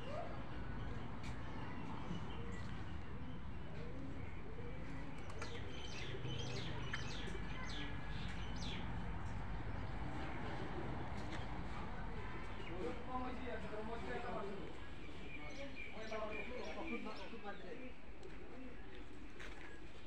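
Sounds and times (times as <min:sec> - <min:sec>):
birds calling: 0:00.0 - 0:08.9.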